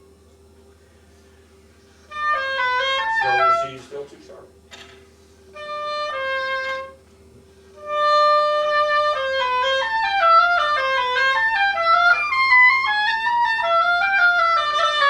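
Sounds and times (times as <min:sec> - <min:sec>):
oboe playing: 0:02.1 - 0:03.9, 0:05.5 - 0:07.1, 0:07.8 - 0:15.0.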